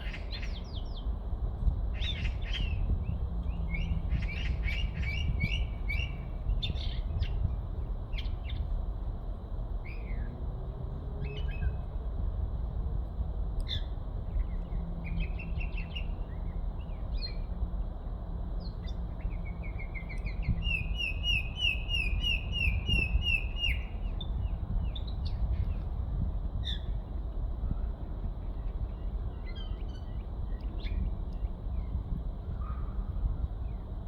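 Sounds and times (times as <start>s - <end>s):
steady low rumble: 22.0s - 34.0s.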